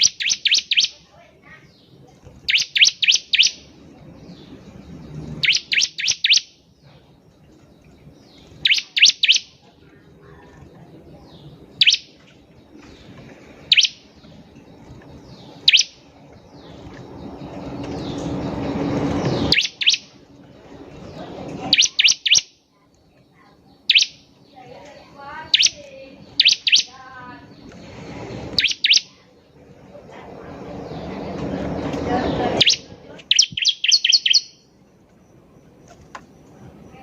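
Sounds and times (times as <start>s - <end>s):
bird warbling trill: 0.0s - 1.0s, 2.4s - 3.7s, 5.3s - 6.6s, 8.4s - 9.6s, 11.7s - 12.2s, 13.6s - 14.3s, 15.3s - 20.2s, 21.1s - 22.6s, 23.8s - 24.4s, 25.2s - 27.5s, 28.5s - 29.2s, 32.3s - 34.8s
bird chirping: 0.0s - 37.0s.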